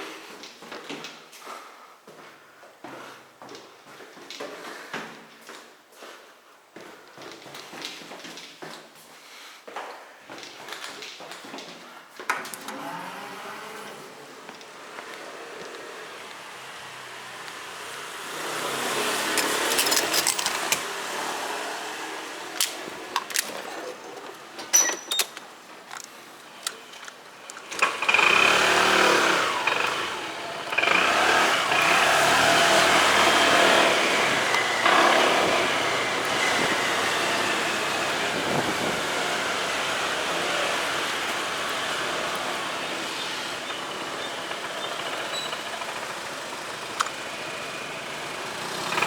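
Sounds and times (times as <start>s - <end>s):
motorcycle riding: 12.6s - 24.6s, 25.9s - 49.0s
rush of wind: 32.7s - 40.7s.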